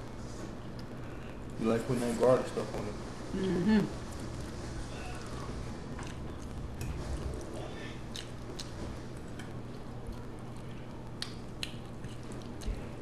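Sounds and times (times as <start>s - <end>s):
steady low hum: 0.0s - 13.0s
chewing and mouth sounds: 5.9s - 13.0s.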